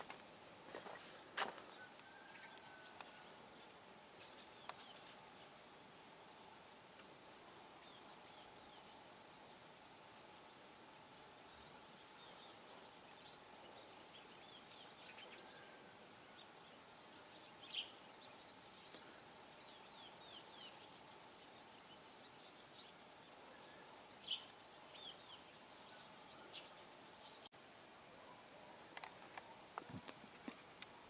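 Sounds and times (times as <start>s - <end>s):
steady background hiss: 0.0s - 31.0s.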